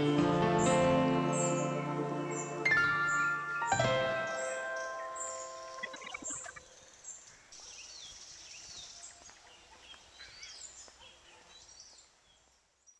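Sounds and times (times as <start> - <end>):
chiming music: 0.0 - 6.6
birds chirping: 0.0 - 12.5
background hiss: 0.0 - 12.9.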